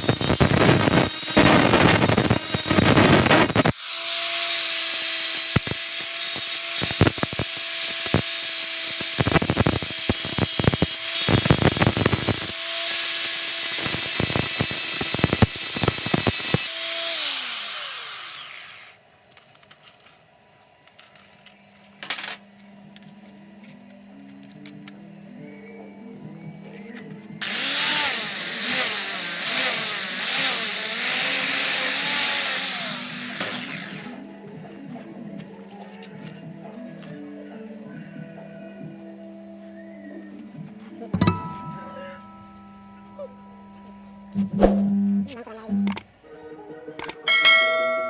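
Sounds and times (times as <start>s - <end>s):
electric grinder on steel: 0.0s - 19.0s, 27.4s - 34.3s
grinder winding down: 0.0s - 19.0s, 27.4s - 34.3s.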